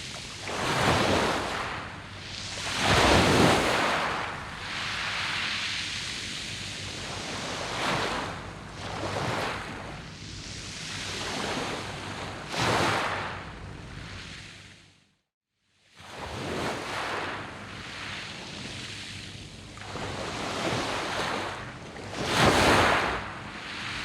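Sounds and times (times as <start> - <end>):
waves breaking on pebbles: 0.3 - 9.8, 19.8 - 24.0.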